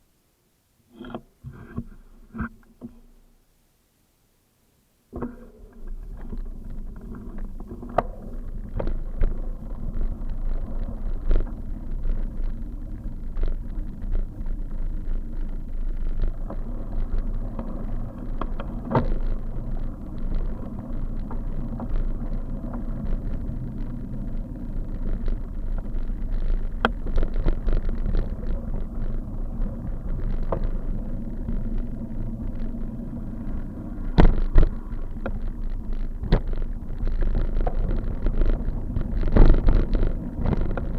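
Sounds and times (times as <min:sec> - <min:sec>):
clicks and knocks from bumps: 0:05.1 - 0:40.9
bicycle road rumble and rattle: 0:05.2 - 0:40.9.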